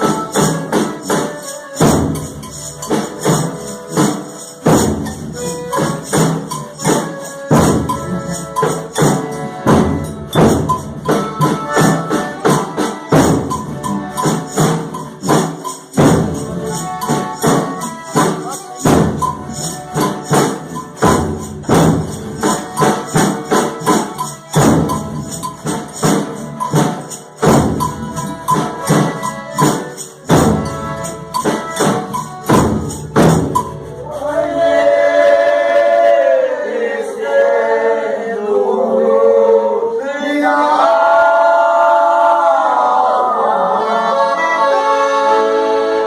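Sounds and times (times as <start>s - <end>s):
tambourine and percussion rhythm: 0.0s - 35.4s
voices singing in harmony: 34.0s - 46.0s.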